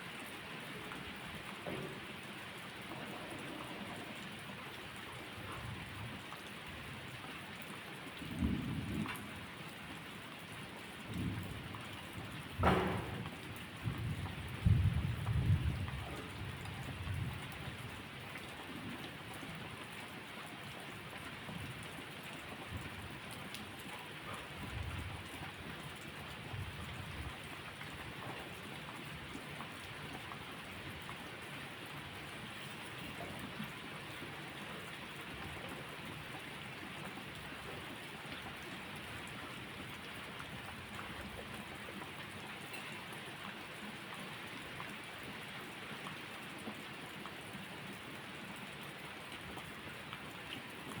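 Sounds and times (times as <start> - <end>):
steady rainfall: 0.0 - 51.0
low thunder rumble: 11.1 - 17.3.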